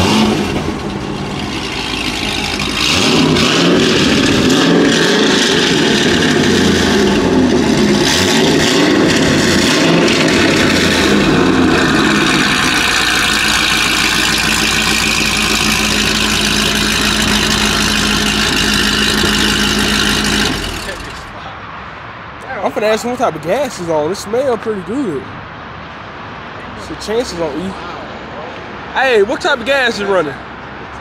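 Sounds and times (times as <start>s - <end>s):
vehicle engine revving and idling: 0.0s - 21.4s.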